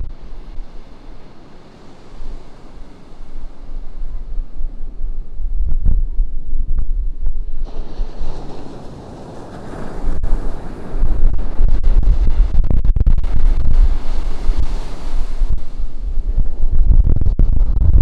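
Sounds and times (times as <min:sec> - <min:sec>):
ocean surf breaking: 0:00.0 - 0:05.5, 0:07.4 - 0:12.6, 0:13.2 - 0:16.8
wind buffeting microphone: 0:00.0 - 0:18.0.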